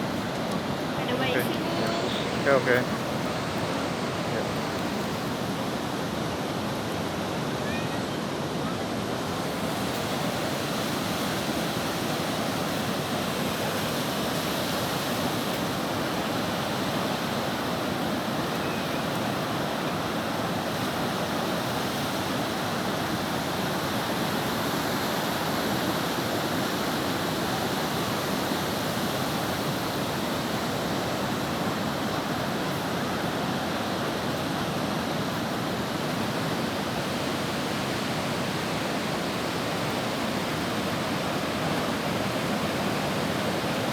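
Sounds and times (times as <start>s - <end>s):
ocean surf breaking: 0.0s - 7.4s.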